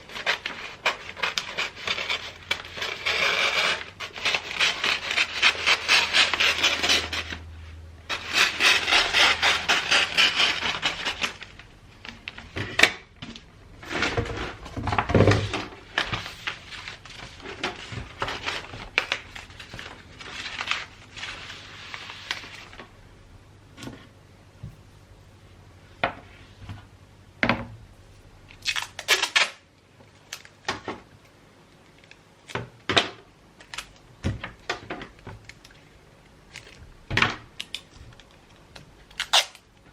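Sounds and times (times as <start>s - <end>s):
wrapping paper rustling: 13.4s - 22.9s.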